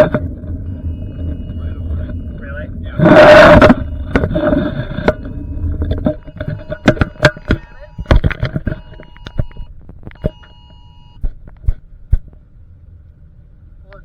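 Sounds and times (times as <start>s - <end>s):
phone two-tone emergency alarm: 0.7s - 2.6s, 4.8s - 11.2s.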